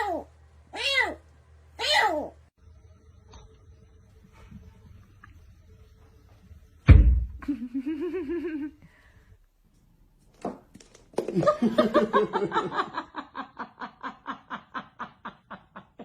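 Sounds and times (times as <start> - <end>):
person laughing: 7.4 - 8.8.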